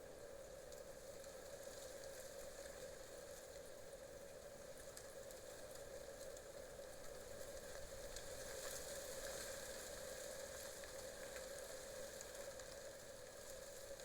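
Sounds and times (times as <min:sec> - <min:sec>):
light crackle: 0:00.0 - 0:14.0.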